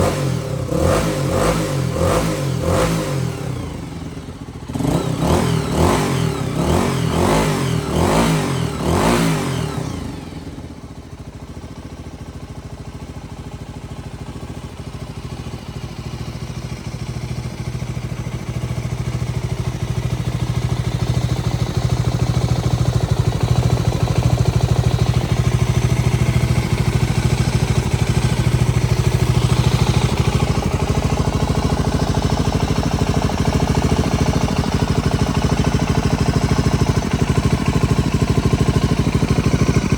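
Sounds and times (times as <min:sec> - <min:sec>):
motorcycle engine idling: 0:00.0 - 0:39.9
motorcycle engine revving: 0:00.0 - 0:39.9.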